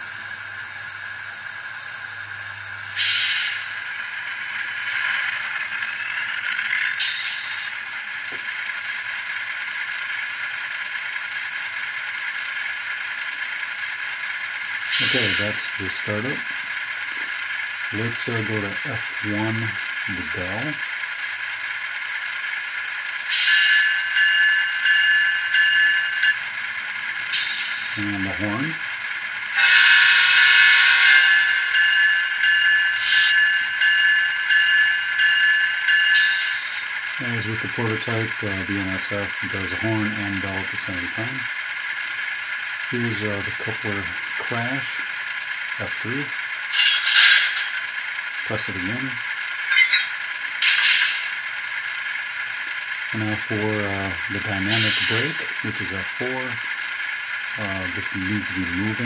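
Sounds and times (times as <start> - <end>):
model locomotive diesel engine sound: 0.0 - 59.0
locomotive bell ringing: 23.2 - 26.7, 29.5 - 41.5, 52.6 - 59.0
locomotive air horn chord: 29.6 - 31.3.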